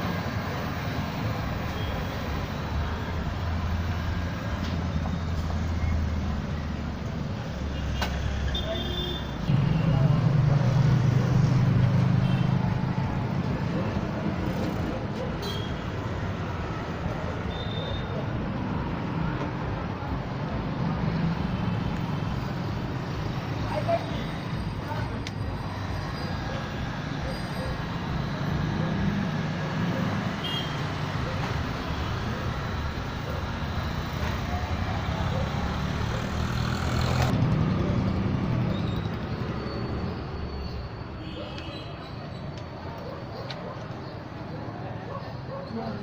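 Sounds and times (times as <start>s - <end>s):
vehicle engine humming: 0.0s - 41.0s
traffic noise: 0.0s - 46.0s.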